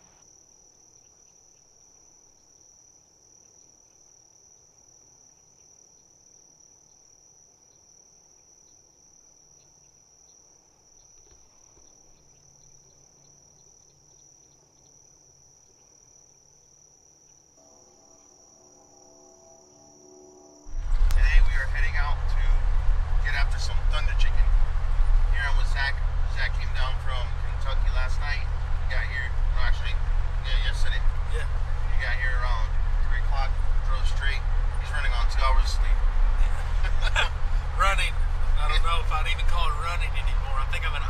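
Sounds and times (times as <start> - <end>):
faint low hum: 0.0 - 41.0
insects trilling high-pitched: 0.0 - 41.0.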